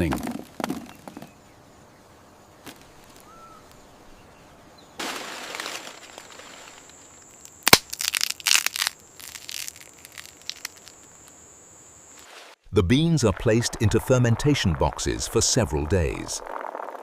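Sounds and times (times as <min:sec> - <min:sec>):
cocoa pods cracking: 0:05.0 - 0:11.4.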